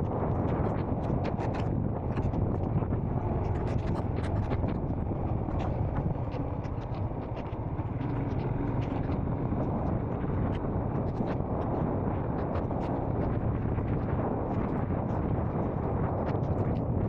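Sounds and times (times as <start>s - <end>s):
wind and road noise: 0.0s - 17.0s
motorcycle engine running: 3.2s - 10.8s.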